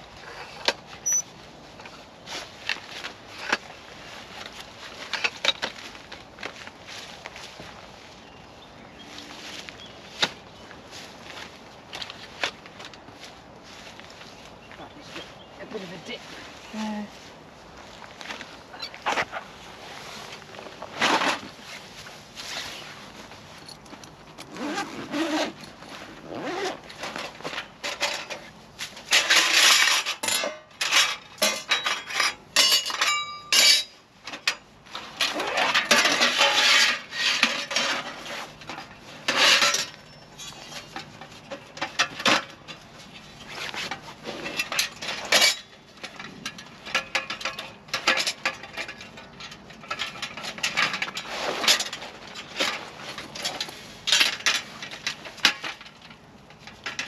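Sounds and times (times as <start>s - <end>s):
objects clattering and clinking: 26.9s - 57.0s.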